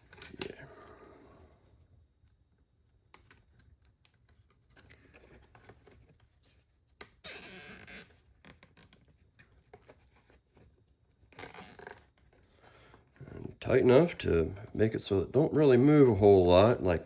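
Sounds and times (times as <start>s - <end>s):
cable tie ratcheting zip: 7.2s - 8.9s, 11.3s - 12.1s.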